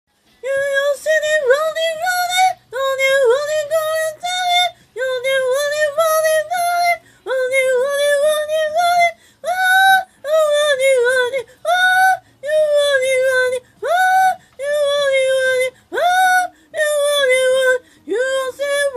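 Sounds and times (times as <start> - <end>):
singer breathing: 4.7 - 5.0, 7.0 - 7.3, 9.2 - 9.5, 12.2 - 12.4, 14.4 - 14.6, 15.7 - 16.8, 17.8 - 18.1.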